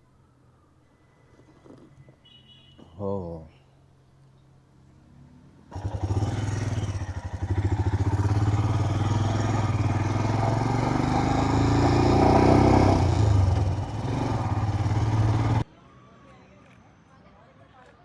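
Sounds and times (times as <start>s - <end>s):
motorcycle engine accelerating: 5.7s - 15.6s.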